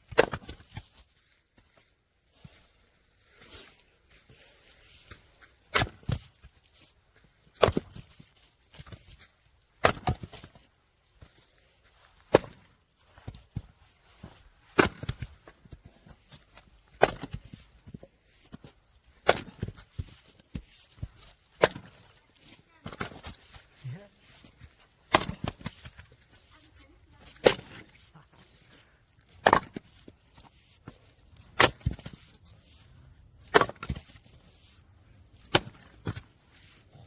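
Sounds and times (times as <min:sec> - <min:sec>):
axe chopping firewood: 0:00.0 - 0:00.9, 0:05.6 - 0:06.4, 0:07.4 - 0:09.2, 0:09.8 - 0:10.6, 0:12.2 - 0:13.7, 0:14.6 - 0:23.7, 0:24.3 - 0:26.3, 0:27.2 - 0:28.1, 0:29.1 - 0:32.4, 0:33.4 - 0:34.4, 0:35.4 - 0:36.8.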